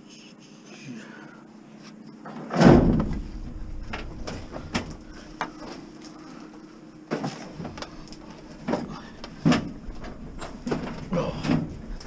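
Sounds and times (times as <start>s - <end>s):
appliance knocking and clunking: 2.5s - 5.8s, 7.1s - 12.0s
heavy thud and scrape: 2.5s - 5.8s.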